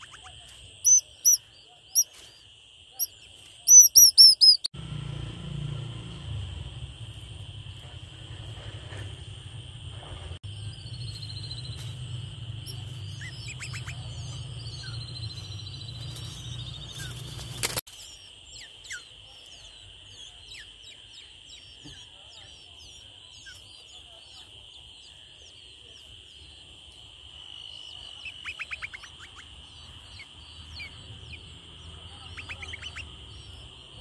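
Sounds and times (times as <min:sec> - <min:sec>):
small birds chirping: 0:00.0 - 0:04.7, 0:10.4 - 0:34.0
low rumble: 0:04.8 - 0:17.6.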